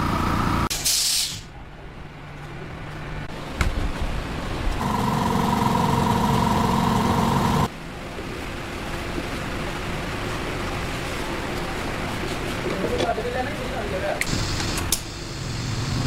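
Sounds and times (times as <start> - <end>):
steady background noise: 0.0 - 16.0
machine humming: 3.4 - 7.7.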